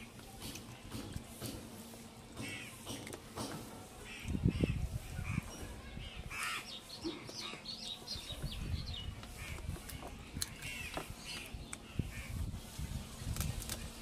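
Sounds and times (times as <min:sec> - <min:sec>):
crows cawing: 0:02.4 - 0:02.8, 0:06.3 - 0:06.7.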